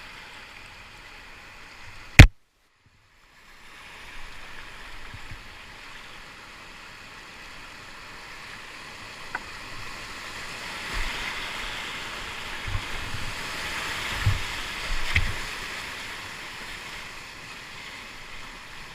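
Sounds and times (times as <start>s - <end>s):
whitewater river rushing: 5.6s - 18.9s.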